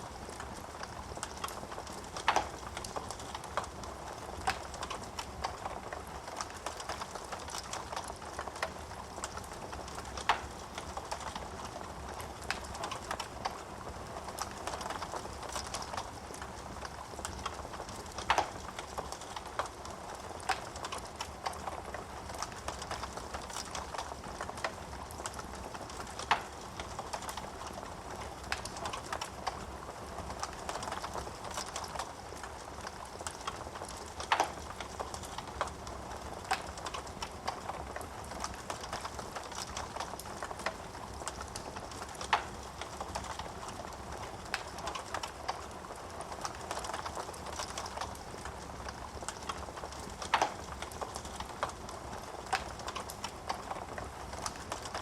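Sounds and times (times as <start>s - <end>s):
wood fire crackling: 0.0s - 55.0s
sharp pops of burning wood: 1.2s - 3.7s, 4.4s - 11.4s, 49.3s - 51.8s.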